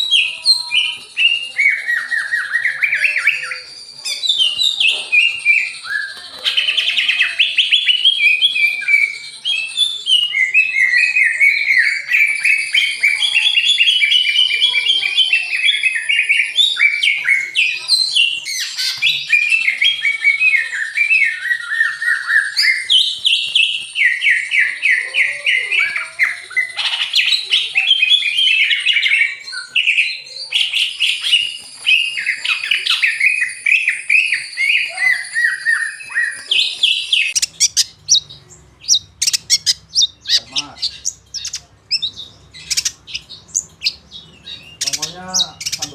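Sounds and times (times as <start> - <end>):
songbird singing: 0.0 - 45.9
sharp bird chips: 21.0 - 25.1, 25.8 - 45.9.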